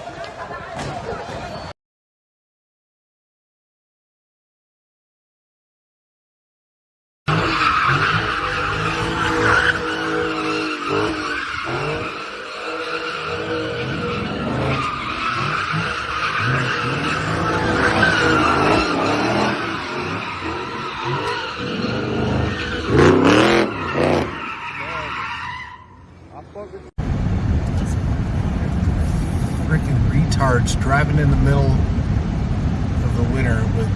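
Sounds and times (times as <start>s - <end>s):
car tyres squealing: 7.3s - 33.9s
car engine running: 27.0s - 33.9s.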